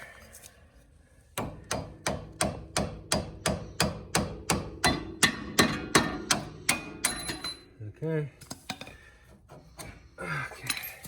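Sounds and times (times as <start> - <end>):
hammer striking metal: 1.4 - 7.7.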